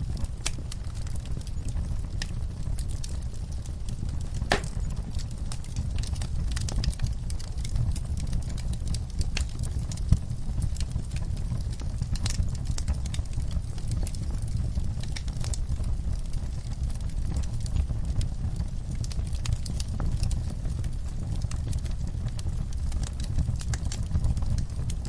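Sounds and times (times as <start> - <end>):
log fire crackling: 0.0 - 25.0.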